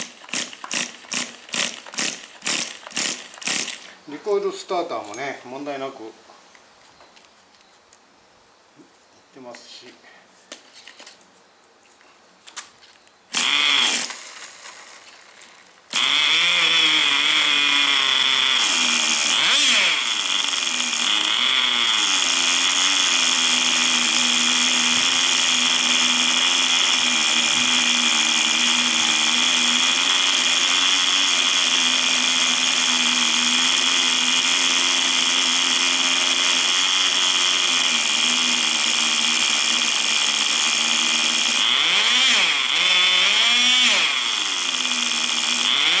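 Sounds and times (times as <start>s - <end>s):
recoil starter pull: 0.0s - 4.0s, 13.3s - 46.0s
small glow engine idling: 13.3s - 46.0s.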